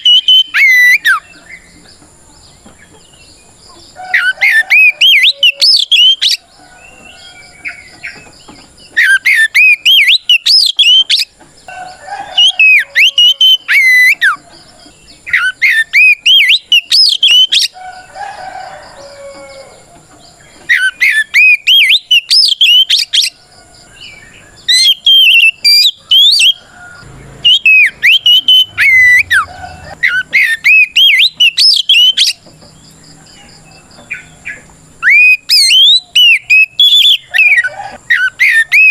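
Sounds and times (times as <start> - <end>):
bird singing whistled phrases: 0.0 - 1.2, 4.2 - 6.4, 9.0 - 11.3, 12.4 - 14.4, 15.3 - 17.8, 20.7 - 23.4, 24.7 - 26.6, 27.4 - 32.4, 35.0 - 38.9.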